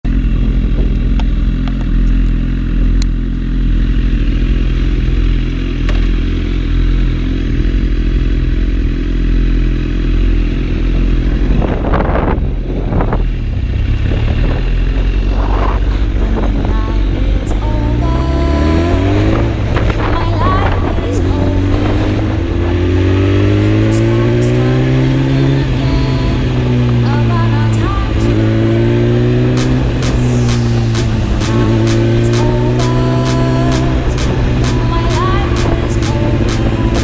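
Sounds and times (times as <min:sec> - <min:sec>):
motorcycle engine idling: 0:00.1 - 0:11.8, 0:29.5 - 0:37.0.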